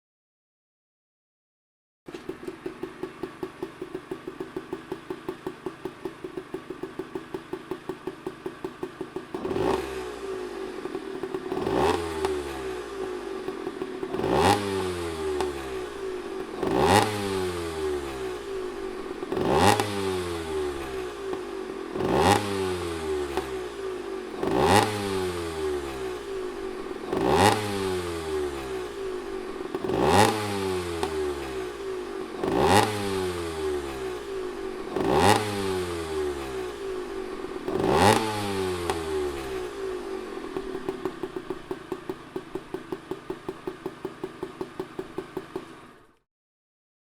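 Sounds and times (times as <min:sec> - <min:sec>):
two-stroke engine idling: 0:02.1 - 0:46.2
engine revving: 0:09.3 - 0:41.8.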